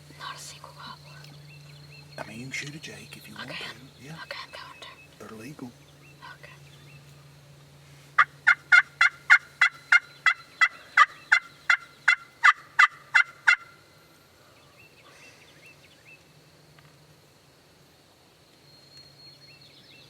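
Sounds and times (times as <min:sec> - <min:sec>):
wild turkey yelping: 0:08.2 - 0:13.8.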